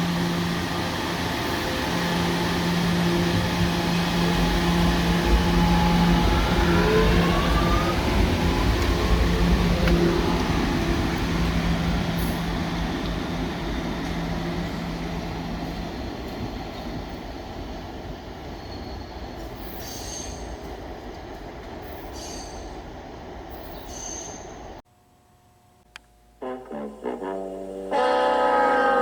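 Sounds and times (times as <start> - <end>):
electric train pulling away: 0.0 - 20.6, 26.4 - 29.0
high-pitched wheel squeals: 28.0 - 29.0.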